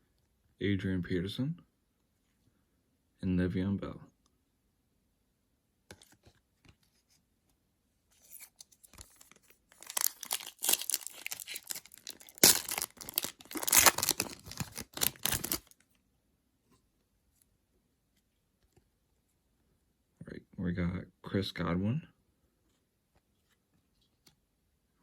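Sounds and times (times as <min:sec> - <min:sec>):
wrapper tearing and crinkling: 0:08.2 - 0:15.8.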